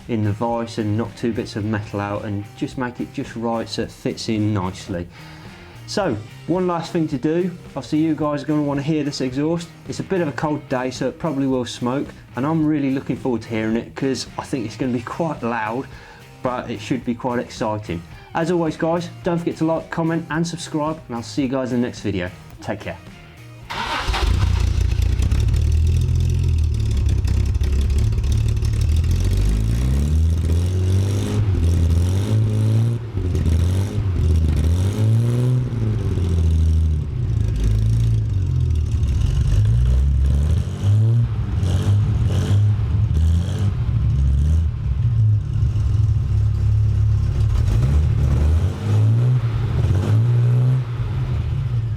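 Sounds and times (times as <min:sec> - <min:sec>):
car engine starting: 0:00.0 - 0:20.7, 0:22.3 - 0:51.9
car engine revving: 0:23.7 - 0:51.9.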